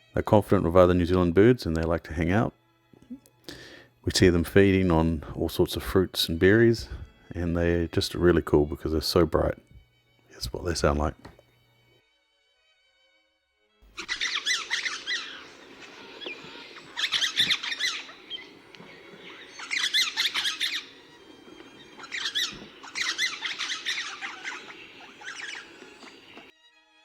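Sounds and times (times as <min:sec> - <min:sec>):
bird chattering calls: 0:14.0 - 0:26.5
low background hum: 0:14.0 - 0:26.5.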